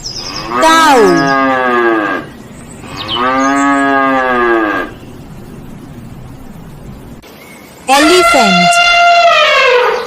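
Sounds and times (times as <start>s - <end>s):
cow mooing: 0.3s - 5.0s.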